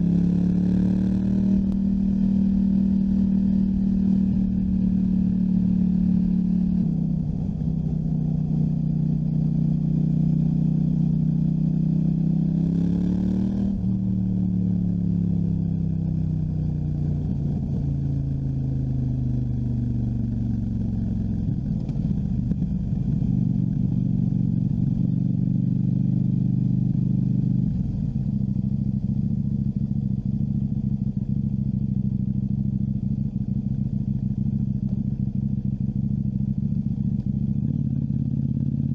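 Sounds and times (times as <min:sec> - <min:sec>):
motorcycle engine: 0:00.0 - 0:18.7.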